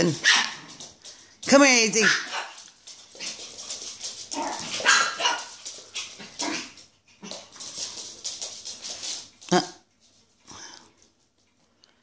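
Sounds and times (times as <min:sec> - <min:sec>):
dogs barking: 0:04.4 - 0:05.6.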